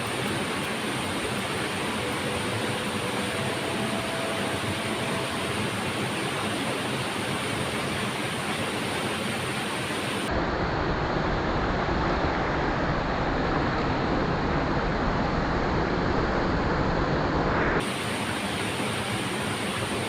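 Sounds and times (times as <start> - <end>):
waterfall rushing: 0.0 - 10.3.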